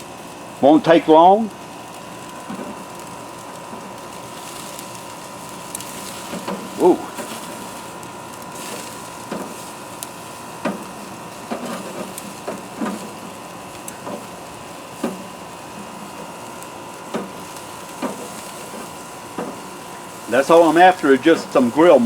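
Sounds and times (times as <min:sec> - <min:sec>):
steaks sizzling: 0:00.0 - 0:22.0
wood fire popping and crackling: 0:00.0 - 0:22.0.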